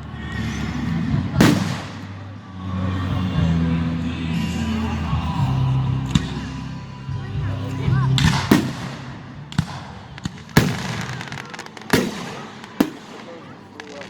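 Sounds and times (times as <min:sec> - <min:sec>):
fireworks exploding: 0:01.3 - 0:02.3, 0:08.1 - 0:14.0.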